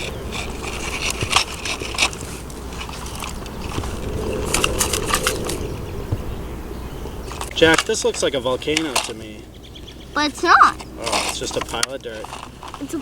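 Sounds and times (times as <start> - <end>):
dirt and gravel crunching: 10.8 - 13.0.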